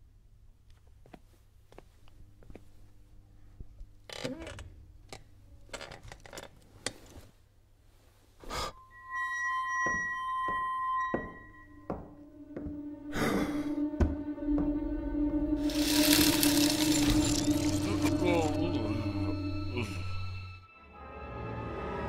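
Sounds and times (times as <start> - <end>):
music: 8.5 - 22.0
bright chime: 8.8 - 12.2.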